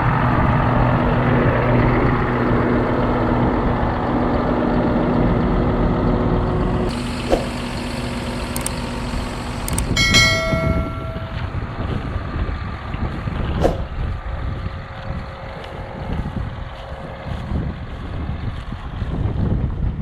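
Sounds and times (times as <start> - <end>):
tractor engine running: 0.0 - 19.2
sharp clicks: 6.9 - 11.5.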